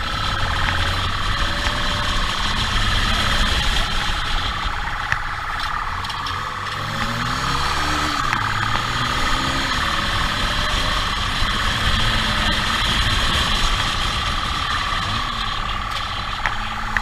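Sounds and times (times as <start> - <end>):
high-pitched whine: 0.0 - 17.0
vehicle running with road noise: 0.0 - 17.0.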